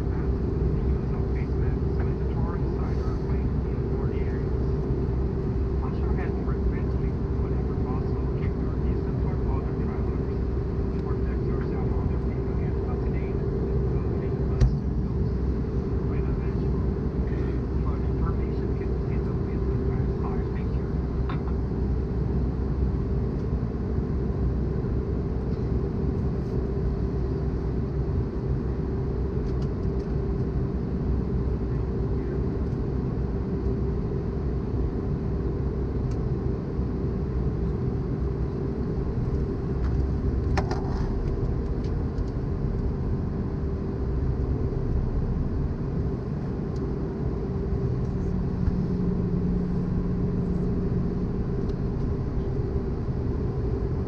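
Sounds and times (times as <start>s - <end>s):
constant tone: 36.0s - 54.0s
engine hum: 37.6s - 54.0s
low rush of airflow: 42.4s - 54.0s.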